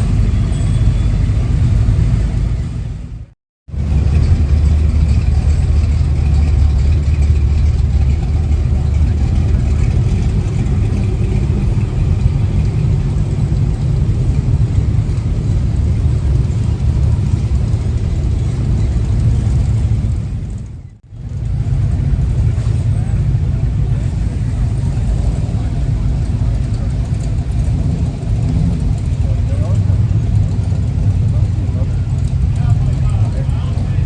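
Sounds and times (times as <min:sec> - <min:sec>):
vehicle engine rumbling: 0:00.0 - 0:34.0.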